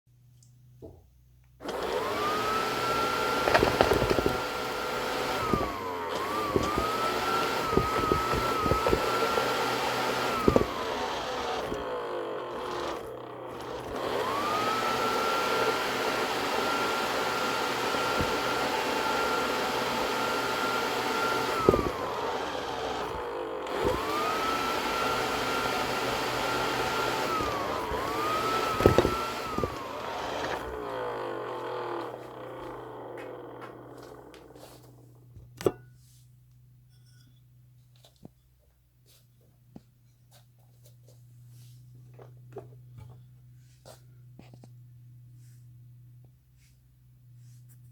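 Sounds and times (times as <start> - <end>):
robot vacuum motor whine: 1.6 - 35.2.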